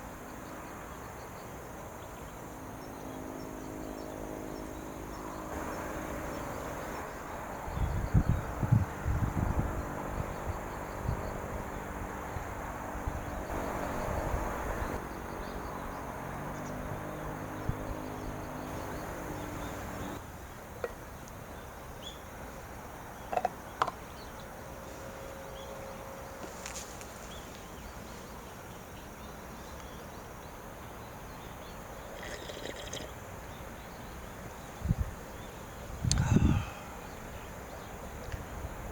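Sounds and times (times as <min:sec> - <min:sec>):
insect chirring: 0:32.0 - 0:33.2
low rumbling noise: 0:36.1 - 0:37.4.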